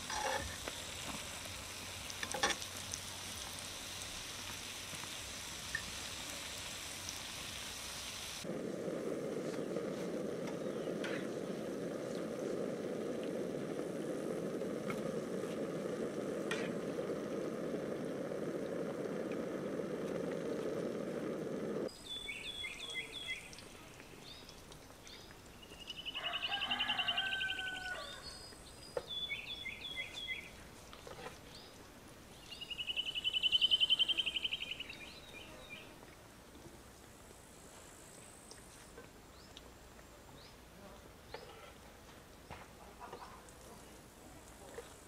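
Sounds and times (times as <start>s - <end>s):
songbirds singing: 21.9s - 36.0s.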